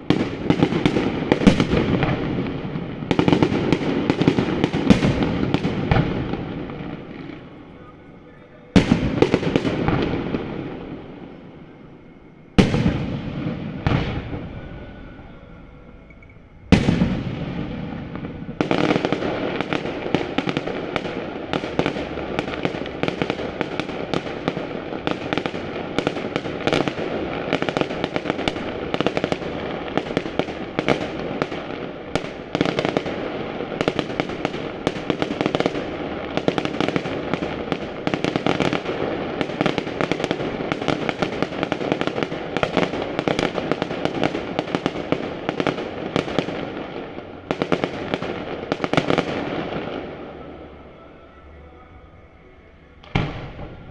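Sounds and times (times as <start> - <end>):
dense firework crackling: 0.0 - 53.9.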